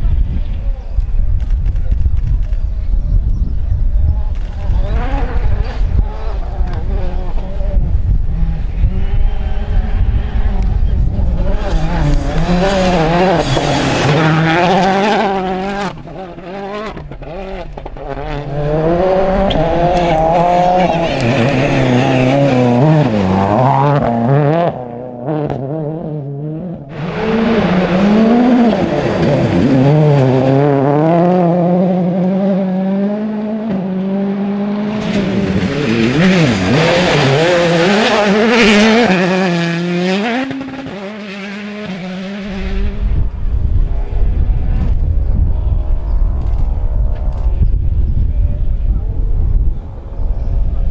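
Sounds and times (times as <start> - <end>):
rally car engines at full throttle: 0.0 - 50.9.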